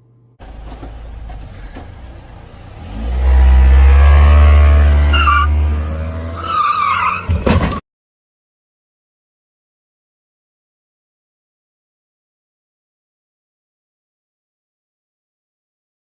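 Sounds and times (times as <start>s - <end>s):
car engine revving: 0.4s - 7.5s
tyres squealing: 0.4s - 7.8s.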